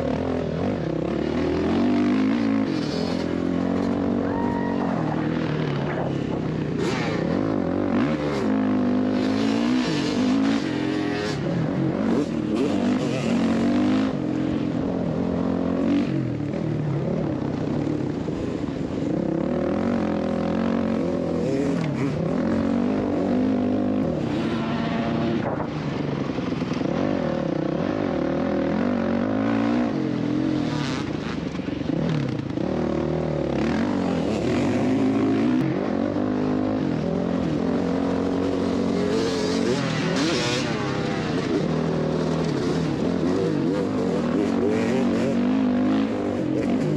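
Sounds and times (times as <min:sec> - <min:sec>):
dirt bike engine revving: 0:05.1 - 0:16.1, 0:26.9 - 0:46.9.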